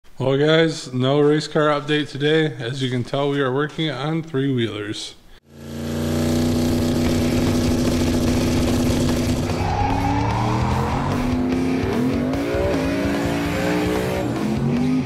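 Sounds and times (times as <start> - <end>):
car engine revving: 5.5 - 15.0.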